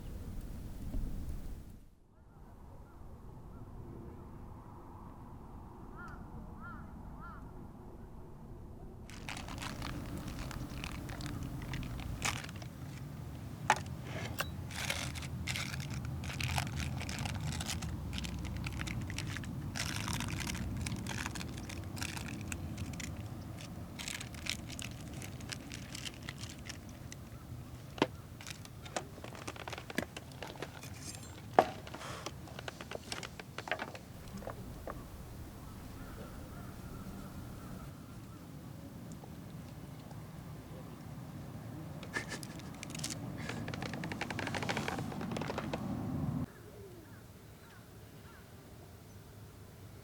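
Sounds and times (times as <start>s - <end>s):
rustling and crinkling handling noise: 9.1s - 35.2s, 42.0s - 46.5s.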